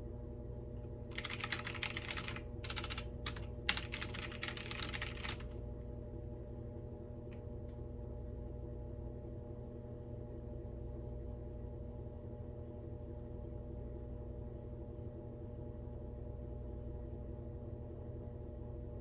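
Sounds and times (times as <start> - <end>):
steady low hum: 0.0 - 19.0
computer keyboard typing: 1.1 - 5.5.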